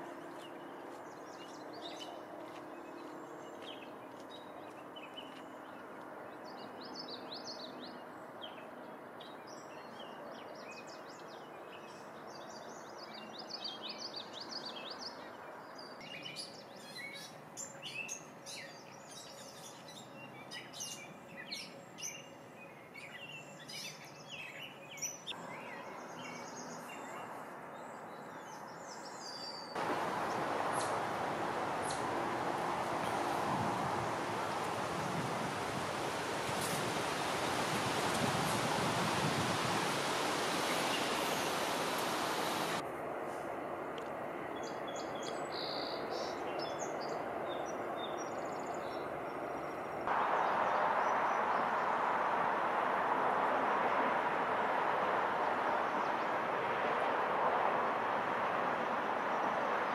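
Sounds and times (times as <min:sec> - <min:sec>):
wild birds chirping: 0:00.0 - 0:42.8, 0:44.6 - 0:59.9
outdoor background hiss: 0:10.6 - 0:46.6, 0:48.4 - 0:59.9.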